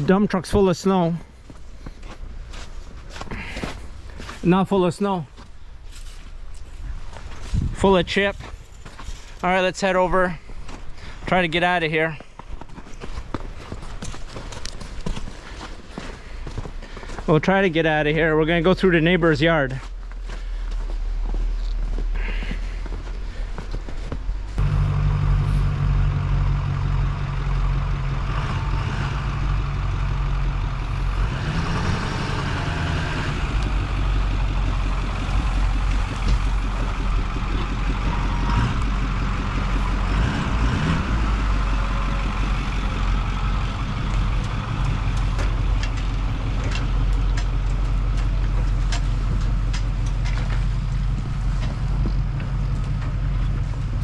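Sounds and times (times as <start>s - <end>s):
truck engine driving off: 24.3s - 54.0s.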